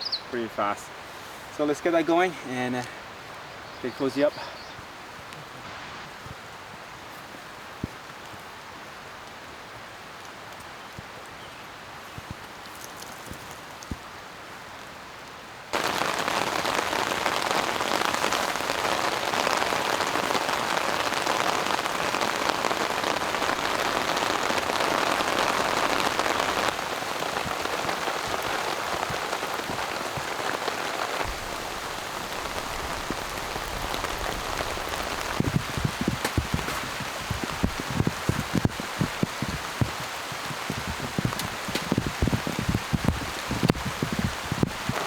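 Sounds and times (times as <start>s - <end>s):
heavy rain hissing: 0.0s - 7.8s, 15.7s - 45.0s
low thuds: 31.2s - 45.0s.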